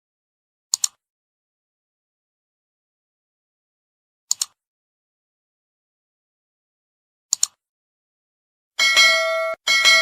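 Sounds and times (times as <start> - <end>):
metallic bell ding: 8.8 - 10.0.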